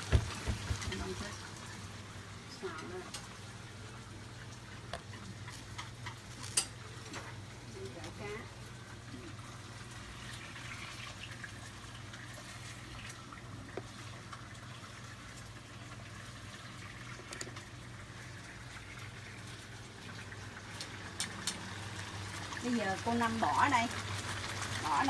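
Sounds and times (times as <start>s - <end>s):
sauce bubbling in a pan: 0.0s - 25.0s.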